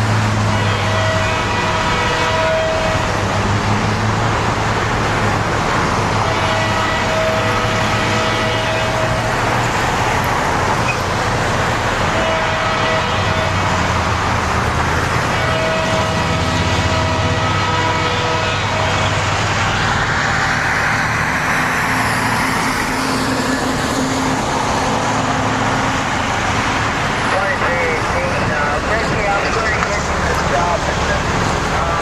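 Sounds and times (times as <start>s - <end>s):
diesel locomotive rumble: 0.0s - 32.0s.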